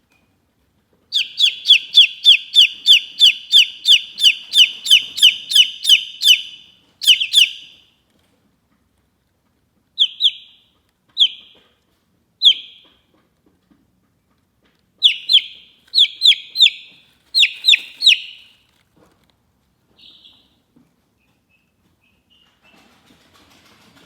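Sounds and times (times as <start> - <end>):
chicken chirping: 1.1 - 7.8, 10.0 - 11.6, 12.4 - 13.0, 15.0 - 18.7, 20.0 - 20.6.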